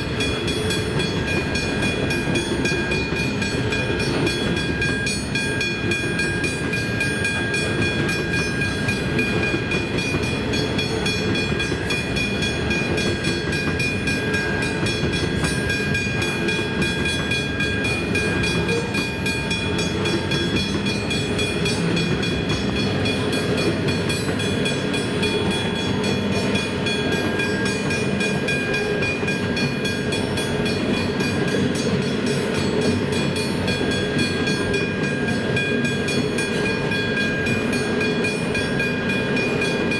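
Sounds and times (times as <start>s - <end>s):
level crossing warning bell: 0.0s - 39.9s
train wheels clattering on rails: 0.0s - 39.9s.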